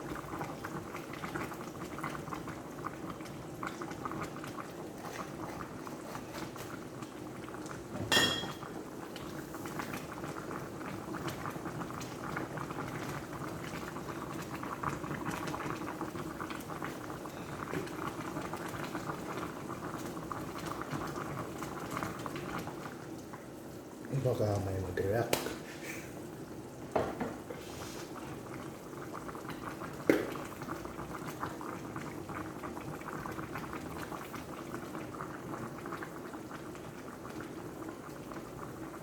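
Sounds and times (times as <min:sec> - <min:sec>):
sauce bubbling in a pot: 0:00.0 - 0:39.0
metal clink on pot: 0:08.1 - 0:08.6.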